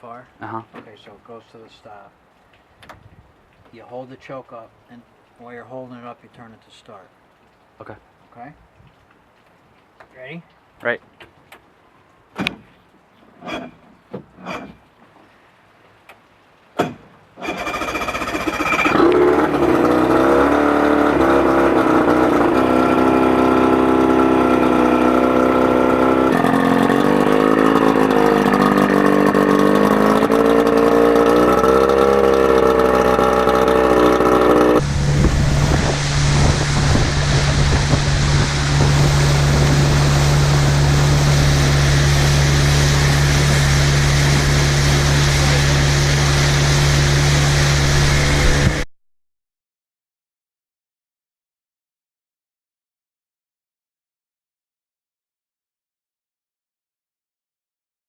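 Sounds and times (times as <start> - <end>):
boat engine starting and idling: 17.4 - 48.8
low engine drone with rushing hiss: 17.8 - 48.8.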